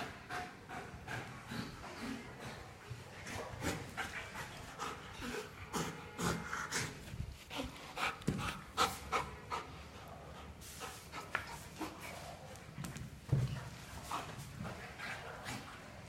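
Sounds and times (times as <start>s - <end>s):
dog panting: 0.0s - 12.5s.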